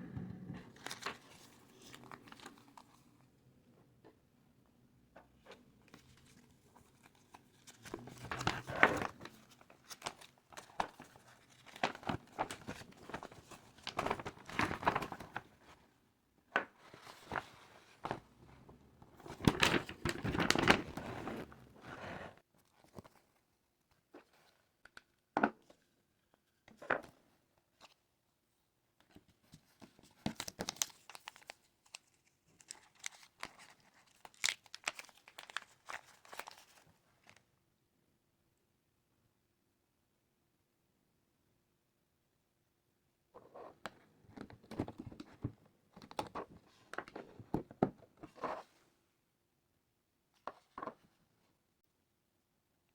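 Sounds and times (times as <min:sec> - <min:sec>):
plastic packaging crinkling and tearing: 0:30.3 - 0:36.8.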